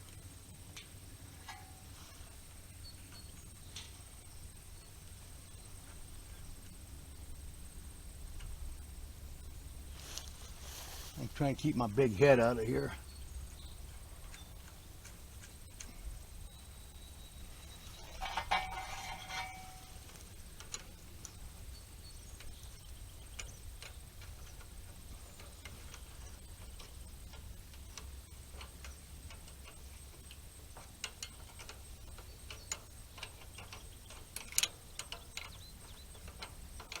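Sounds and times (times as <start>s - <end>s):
wrench clicking on bolts: 22.4s - 37.0s.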